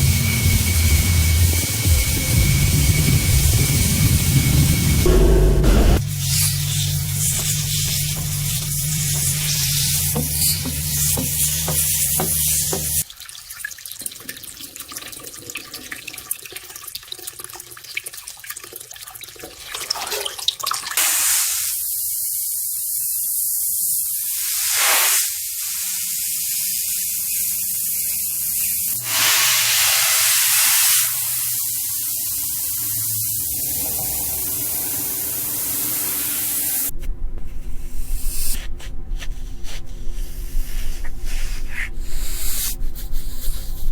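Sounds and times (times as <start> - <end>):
pressure washer spraying water: 0.0 - 13.0, 24.2 - 36.9.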